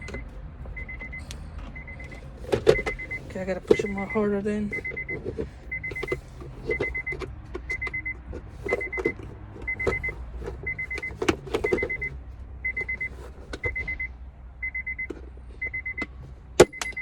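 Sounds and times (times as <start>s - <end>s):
electronic beeper pips: 0.8s - 8.1s
hand tools clicking and knocking: 16.6s - 17.0s.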